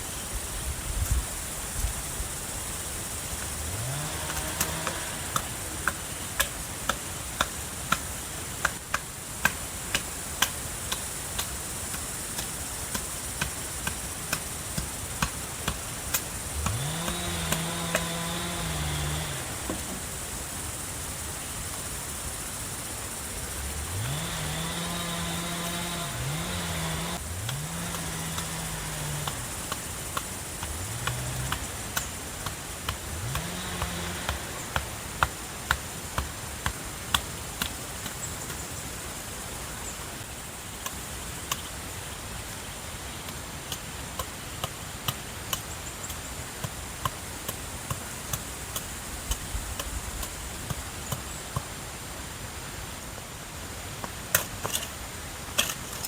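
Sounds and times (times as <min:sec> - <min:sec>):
vehicle engine revving: 0:03.1 - 0:06.8, 0:15.6 - 0:20.8, 0:23.1 - 0:36.2
sharp clicks and knocks: 0:27.1 - 0:38.2.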